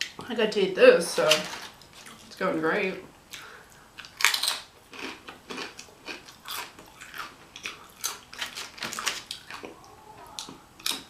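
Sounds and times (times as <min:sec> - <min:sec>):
close chewing with mouth clicks: 0:03.3 - 0:11.0.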